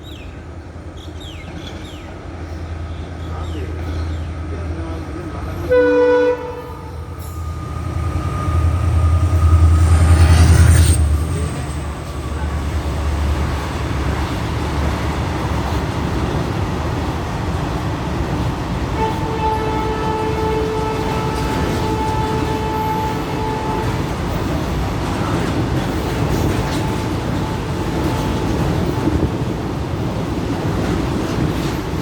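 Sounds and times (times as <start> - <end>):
train rumbling past: 0.0 - 32.0
train horn: 5.4 - 11.6, 18.9 - 25.6, 26.2 - 29.3.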